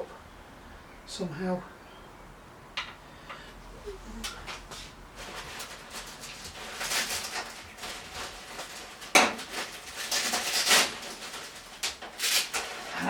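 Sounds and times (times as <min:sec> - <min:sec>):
small objects clattering on workbench: 0:05.2 - 0:13.0.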